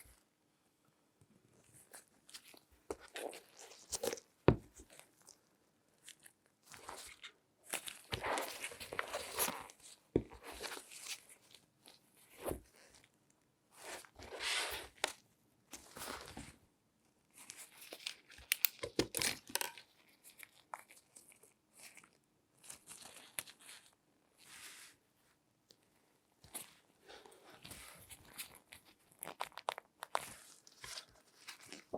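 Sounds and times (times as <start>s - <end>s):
gloved hands rustling and scraping: 6.0s - 13.1s, 13.7s - 16.6s, 17.3s - 31.9s.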